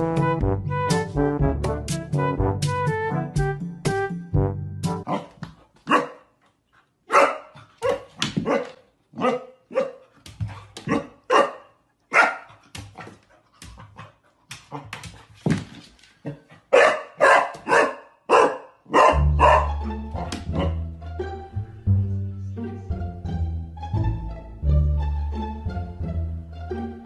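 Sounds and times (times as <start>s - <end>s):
puppy barking: 5.1s - 6.3s, 7.1s - 10.1s, 10.9s - 12.6s, 16.7s - 19.8s, 20.5s - 20.8s.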